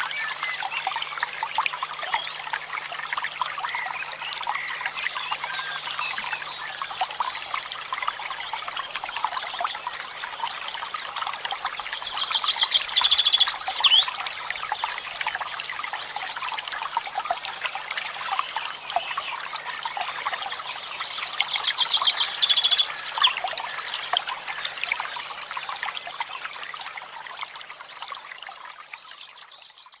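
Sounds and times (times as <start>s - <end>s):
small birds chirping: 12.0s - 14.2s, 18.5s - 25.5s.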